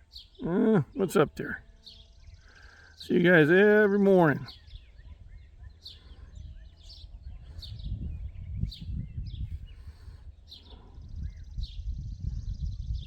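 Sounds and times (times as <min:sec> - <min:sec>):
birds chirping: 0:00.0 - 0:05.0.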